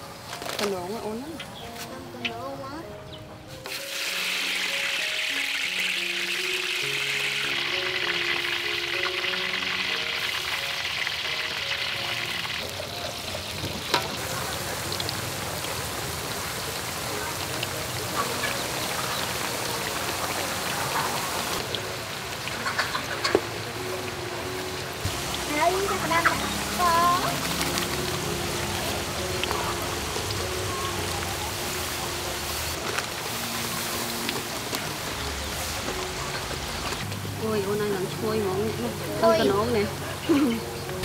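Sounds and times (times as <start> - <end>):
light background music: 0.0 - 41.0
oil popping: 3.6 - 23.6
food sizzling in hot oil: 3.6 - 41.0.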